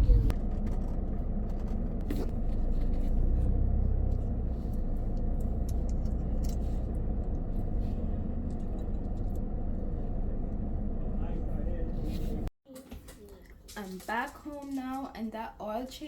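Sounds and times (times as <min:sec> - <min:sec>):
engine and road rumble: 0:00.0 - 0:12.5.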